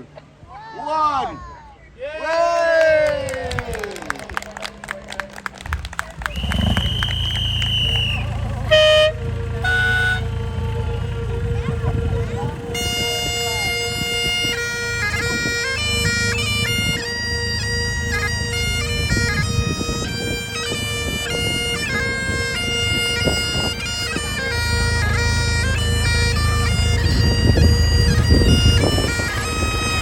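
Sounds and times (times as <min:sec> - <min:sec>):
bagpipes playing a tune: 0:07.8 - 0:30.0.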